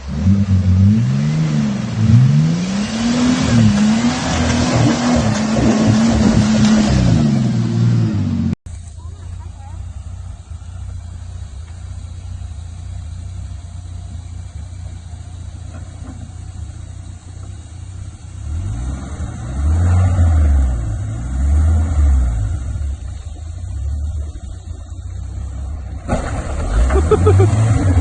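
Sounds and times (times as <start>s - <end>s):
engine revving: 0.0s - 8.6s, 18.0s - 28.0s.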